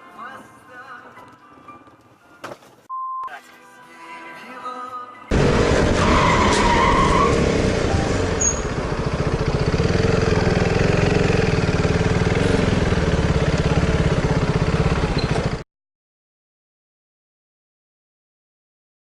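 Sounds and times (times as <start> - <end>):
motor vehicle running: 5.3 - 15.6
brief squeal: 8.4 - 8.7, 15.2 - 15.5.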